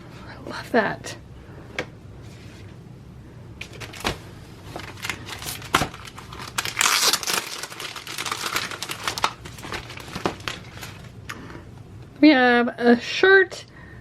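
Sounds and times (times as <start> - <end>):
packaging crinkling: 3.6 - 11.2.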